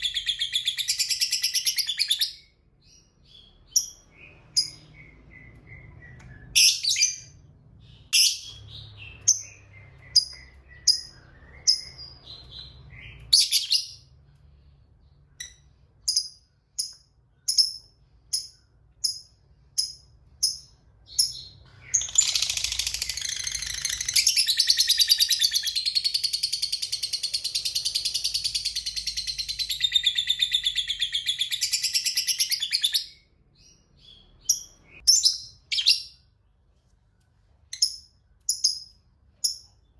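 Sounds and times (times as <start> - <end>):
lovebird chirping: 0.0 - 14.2, 15.0 - 36.4, 37.6 - 39.9
lovebird rapid chattering trill: 22.0 - 29.2.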